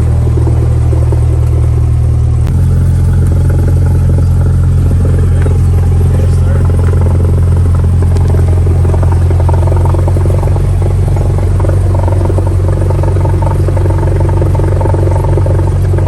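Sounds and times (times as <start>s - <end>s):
aircraft engine drone: 0.0s - 16.0s.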